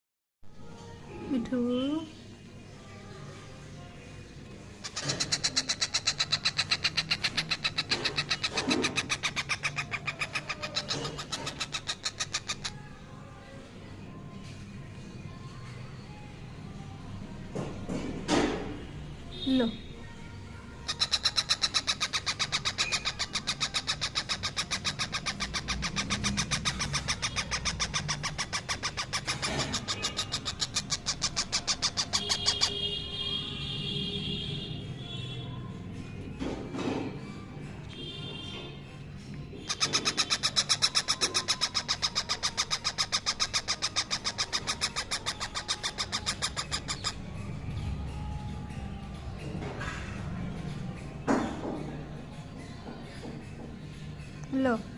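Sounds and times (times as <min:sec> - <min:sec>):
baby parrot begging calls: 0:04.8 - 0:12.8, 0:20.8 - 0:33.0, 0:39.6 - 0:47.3.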